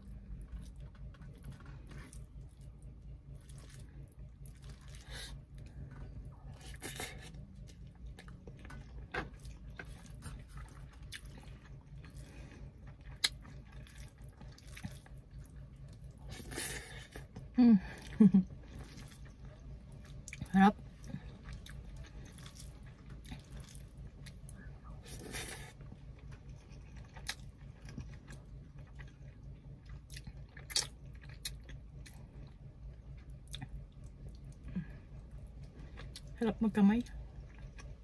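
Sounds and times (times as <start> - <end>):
faint low hum: 0.0 - 38.0
person chewing with wet smacks: 0.0 - 38.0.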